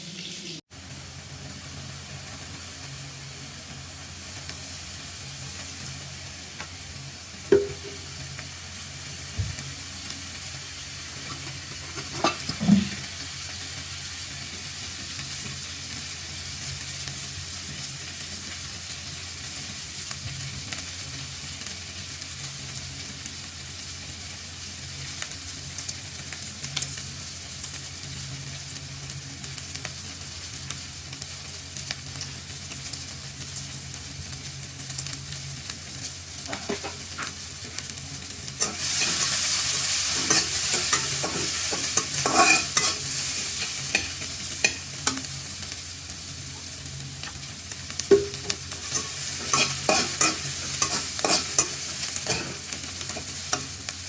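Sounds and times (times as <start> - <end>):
food sizzling in a pan: 0.0 - 54.0
spoon knocking against pan: 7.5 - 8.1, 48.1 - 51.4.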